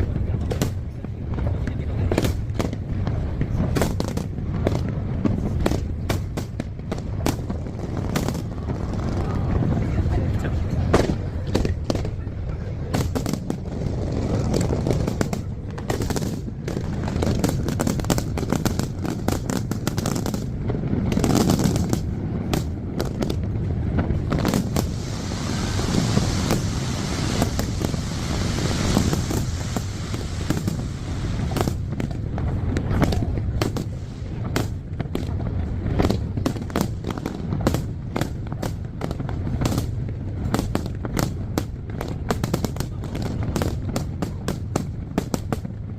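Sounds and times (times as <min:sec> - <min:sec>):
firework crackling fizz: 0:00.0 - 0:12.2, 0:12.9 - 0:45.9
firework bursts and booms: 0:00.0 - 0:45.9
low rumble: 0:21.8 - 0:36.5.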